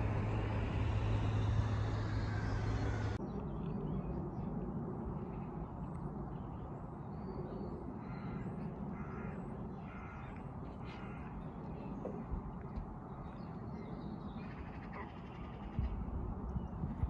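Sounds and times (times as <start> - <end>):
steady low rumble: 0.0 - 17.0
crow cawing: 9.0 - 10.3.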